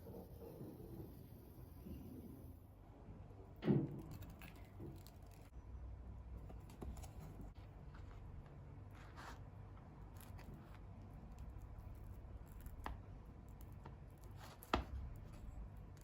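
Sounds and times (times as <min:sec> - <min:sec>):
soft handling rustles: 0:06.4 - 0:11.0.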